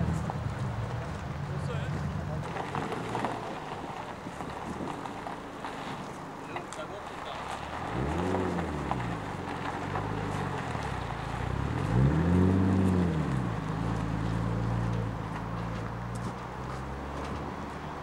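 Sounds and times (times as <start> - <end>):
car engine revving: 7.0 - 18.0.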